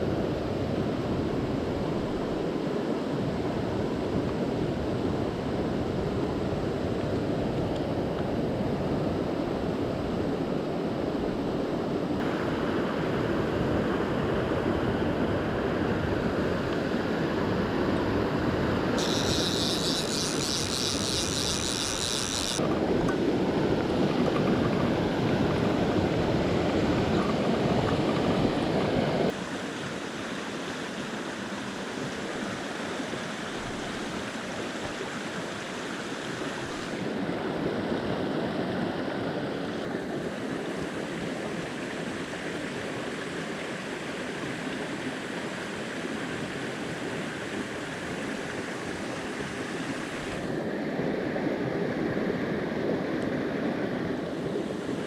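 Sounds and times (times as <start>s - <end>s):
stream water rushing over rocks: 12.2s - 50.7s.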